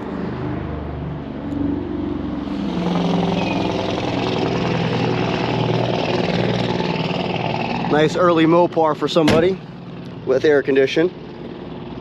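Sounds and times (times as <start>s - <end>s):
car engine running: 2.4s - 12.0s.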